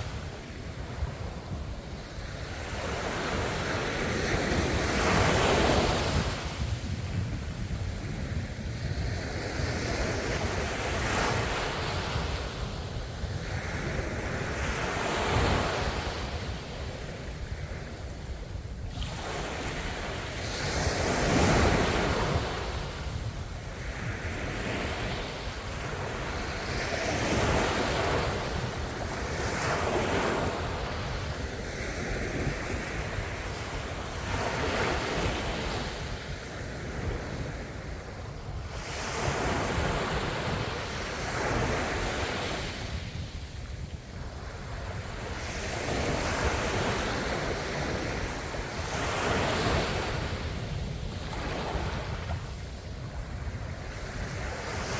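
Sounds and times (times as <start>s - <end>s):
wind buffeting microphone: 0.0s - 54.9s
ocean waves breaking: 44.6s - 52.6s.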